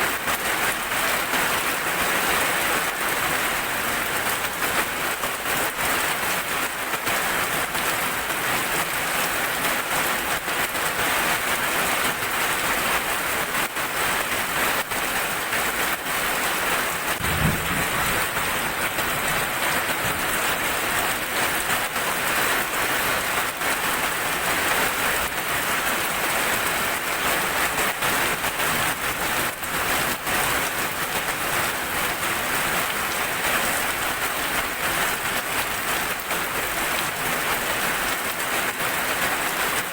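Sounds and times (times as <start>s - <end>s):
heavy rain falling: 0.0s - 39.9s
low rumble: 17.2s - 20.4s.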